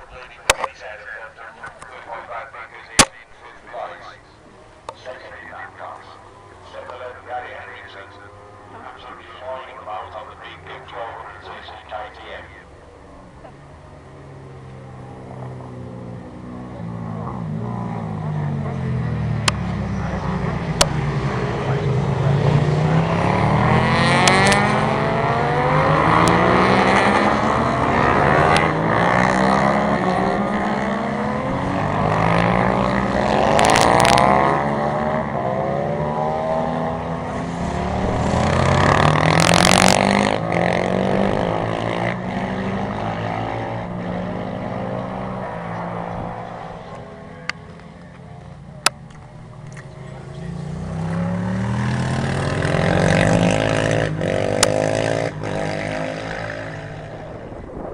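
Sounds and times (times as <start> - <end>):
racing motorcycles accelerating: 0.0 - 57.9.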